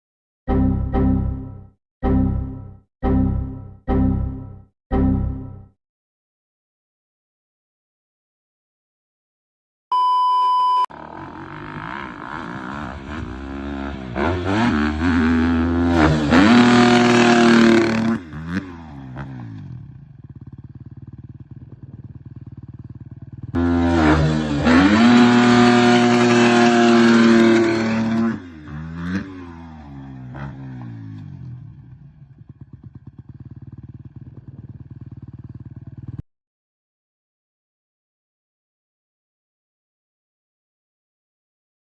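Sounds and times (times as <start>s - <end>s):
short steady beep: 9.9s - 10.9s
dirt bike engine revving: 10.9s - 31.7s.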